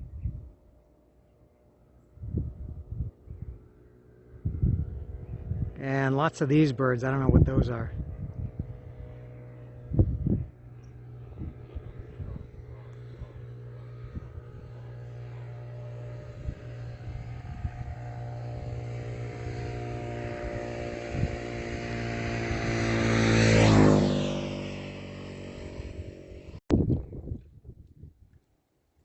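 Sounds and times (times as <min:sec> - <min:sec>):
vehicle passing by: 0:04.3 - 0:26.6.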